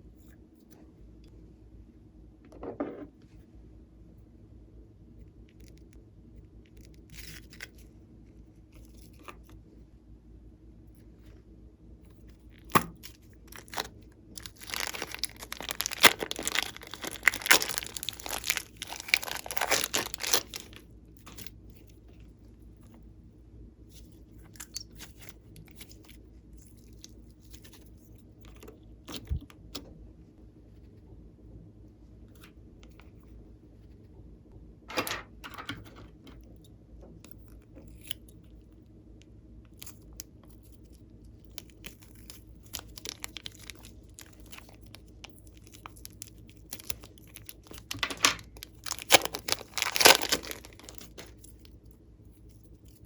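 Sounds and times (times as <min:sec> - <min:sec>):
crackling crinkling handling noise: 0:06.6 - 0:09.7, 0:12.1 - 0:23.1, 0:23.9 - 0:29.9, 0:34.9 - 0:38.5, 0:39.7 - 0:53.0.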